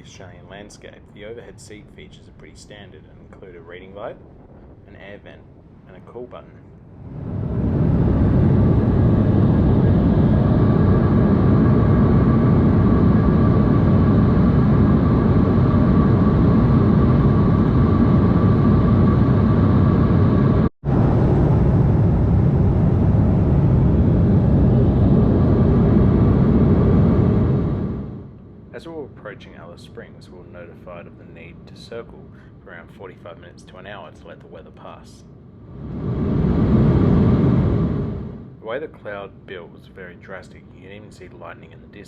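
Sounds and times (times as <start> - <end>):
airliner cabin rumble: 0.0 - 42.0.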